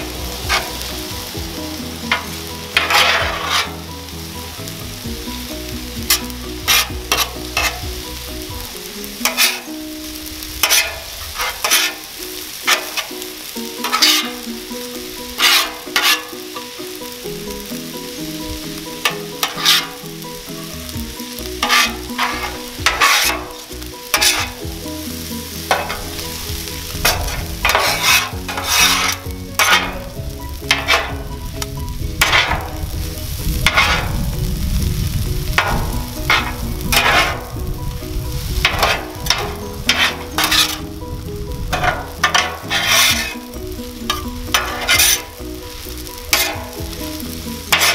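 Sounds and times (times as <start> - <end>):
metal spatulas scraping and clacking: 0.0 - 1.0, 2.1 - 3.8, 6.0 - 7.9, 9.2 - 9.8, 10.6 - 16.8, 19.0 - 20.1, 21.4 - 24.6, 25.7 - 26.3, 27.0 - 32.8, 33.6 - 34.2, 35.6 - 37.5, 38.6 - 40.9, 41.7 - 45.4, 46.3 - 47.9
food sizzling on a griddle: 0.0 - 47.9.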